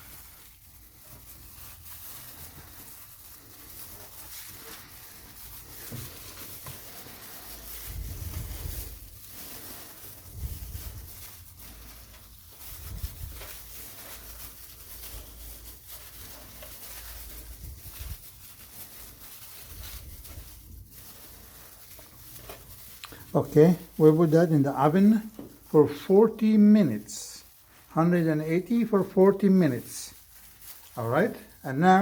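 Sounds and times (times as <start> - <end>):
potato wedges set on baking paper: 0.0 - 32.0.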